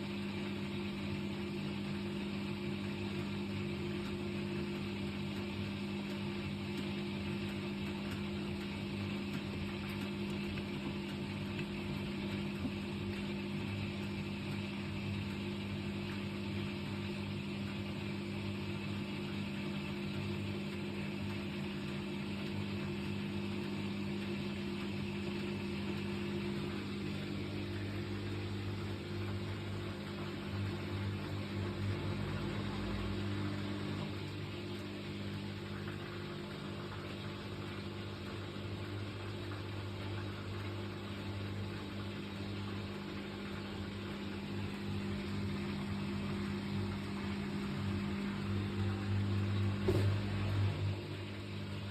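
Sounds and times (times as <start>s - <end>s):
washing machine running: 0.0s - 51.9s.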